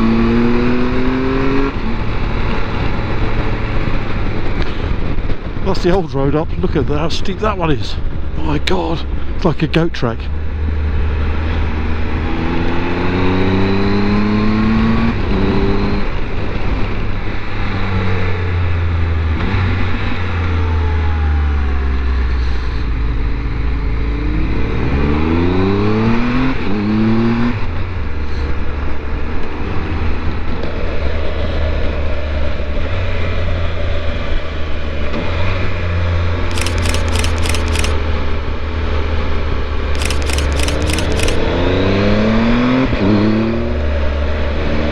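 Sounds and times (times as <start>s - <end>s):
motorcycle engine accelerating: 0.0s - 5.6s, 10.4s - 32.3s, 38.8s - 44.9s.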